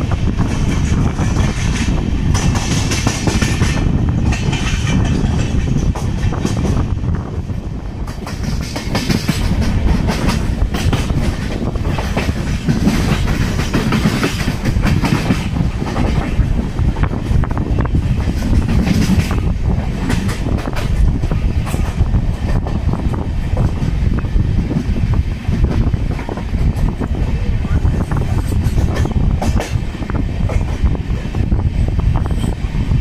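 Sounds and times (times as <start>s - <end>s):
train rumbling at speed: 0.0s - 33.0s
wheels clattering over rail joints: 0.4s - 6.8s, 8.0s - 27.1s.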